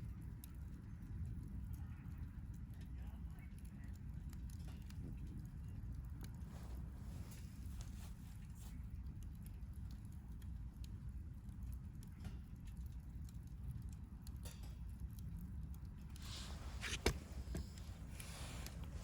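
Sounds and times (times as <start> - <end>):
campfire crackling: 0.0 - 19.0
low steady fire rumble: 0.0 - 19.0
soft hiss: 16.0 - 19.0.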